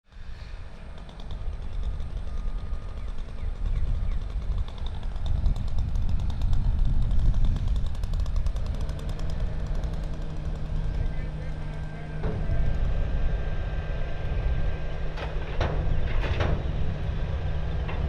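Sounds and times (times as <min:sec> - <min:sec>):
heavy machinery engine rumble: 0:00.1 - 0:18.0
rapid rattling clatter: 0:00.1 - 0:18.0.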